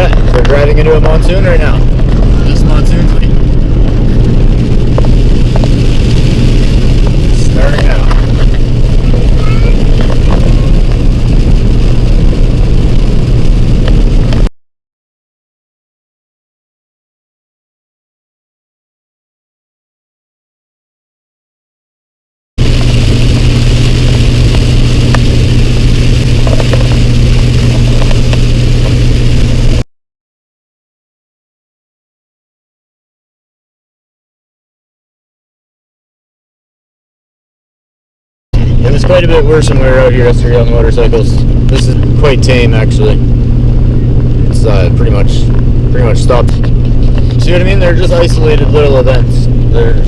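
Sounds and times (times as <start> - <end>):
engine and road noise drone: 0.0 - 14.5, 22.6 - 29.8, 38.6 - 50.0
rain and wind hiss: 0.0 - 14.5, 22.6 - 29.8, 38.6 - 50.0.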